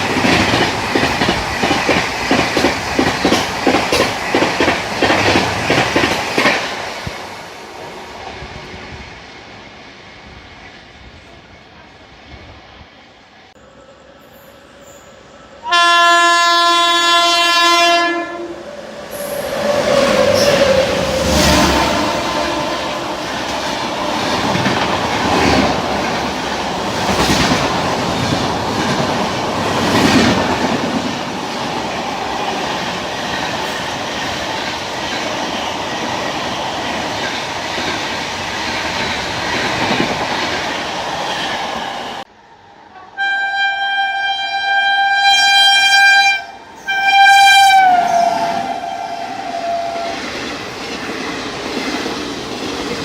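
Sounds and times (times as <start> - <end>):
train wheels rumbling on track: 0.0 - 13.6, 14.8 - 43.0, 46.1 - 53.0
train horn blasts: 15.6 - 18.6, 20.1 - 24.7, 43.0 - 50.2.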